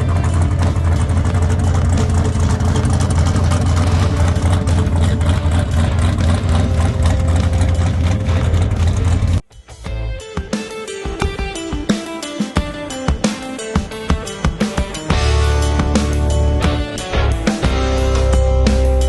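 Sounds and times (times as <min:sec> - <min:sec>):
car engine running: 0:00.0 - 0:09.4, 0:15.1 - 0:19.0.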